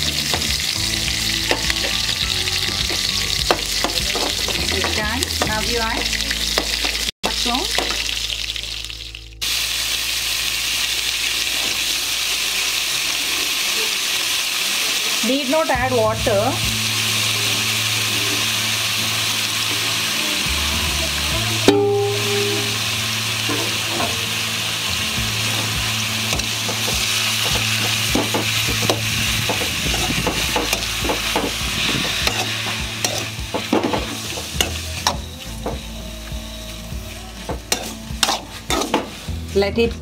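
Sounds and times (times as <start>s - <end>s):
mushrooms sizzling in a pan: 0.0s - 40.0s
spoon scraping a pan: 25.6s - 35.3s, 37.6s - 39.4s.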